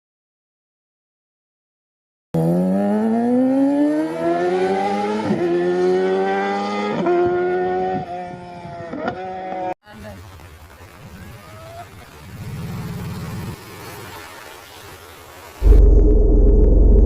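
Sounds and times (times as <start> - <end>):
vehicle engine accelerating: 15.6 - 17.0.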